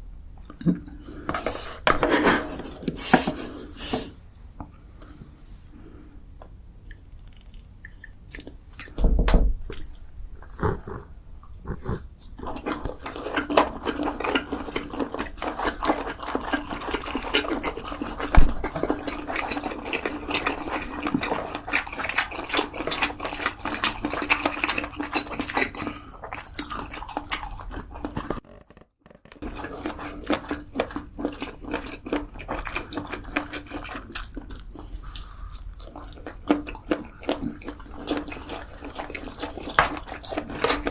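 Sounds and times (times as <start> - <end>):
person chewing and slurping: 9.7 - 28.8, 29.4 - 40.9.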